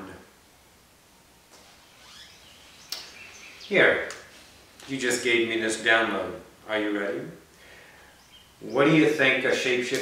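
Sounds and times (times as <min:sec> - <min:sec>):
faint bird chirps: 0:01.7 - 0:04.6, 0:07.9 - 0:09.2.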